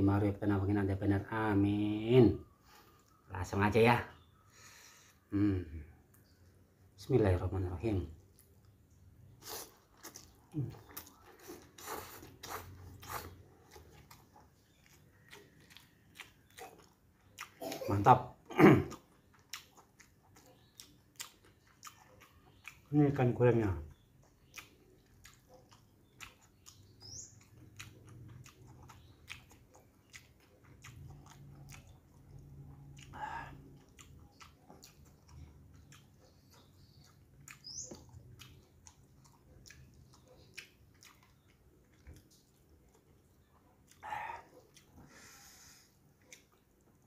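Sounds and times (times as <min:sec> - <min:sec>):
close-up chewing: 0:02.4 - 0:03.3, 0:08.1 - 0:47.0
wet mouth clicks and lip smacks: 0:24.3 - 0:44.9.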